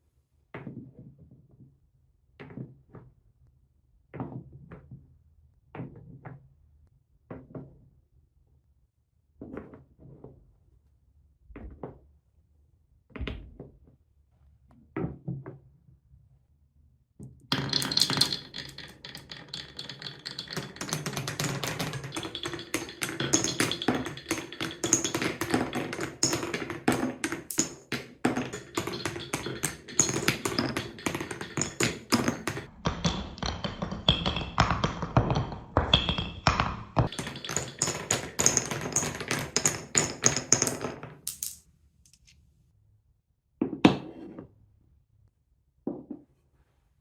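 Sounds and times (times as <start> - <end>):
marbles rolling down wooden run: 17.5 - 41.6
knocks on wood: 17.6 - 40.6.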